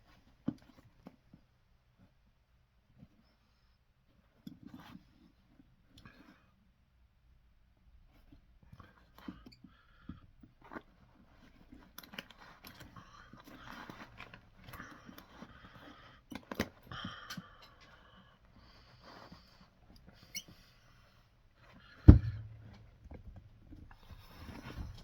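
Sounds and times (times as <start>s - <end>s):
loud knock: 22.1s - 22.8s.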